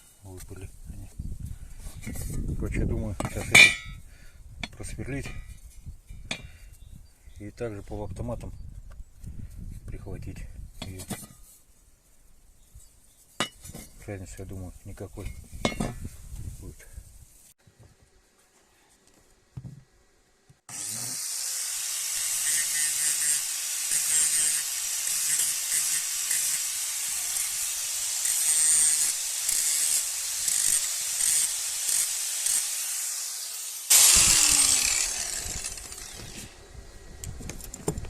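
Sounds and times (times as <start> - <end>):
electric drill boring into metal: 20.7 - 37.8.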